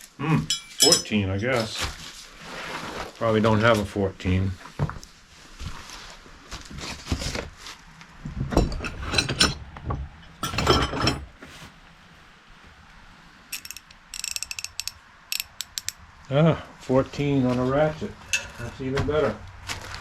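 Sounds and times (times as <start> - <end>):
metal hand tools clanking: 0.5 - 1.2, 8.5 - 11.3, 13.6 - 16.0
ratchet clicking: 13.5 - 16.0.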